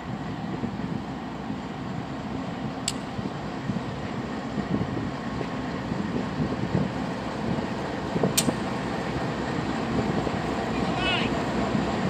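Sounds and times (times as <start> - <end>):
freight train passing: 0.0 - 12.0
sharp click: 8.4 - 8.6.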